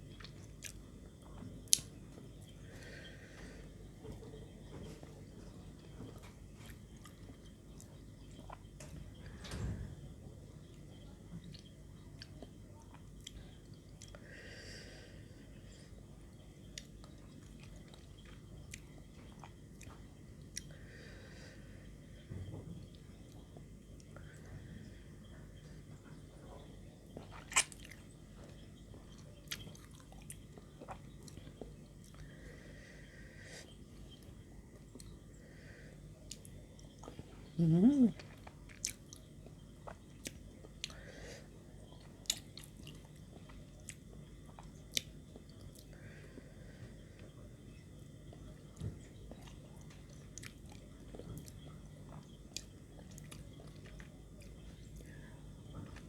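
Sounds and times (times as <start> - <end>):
faint chewing and biting: 0.0 - 9.1, 10.6 - 14.2, 16.3 - 21.0, 25.2 - 32.6, 33.5 - 35.4, 36.1 - 56.0
person chewing crunchy food: 27.2 - 32.3, 41.9 - 46.4, 49.2 - 55.1.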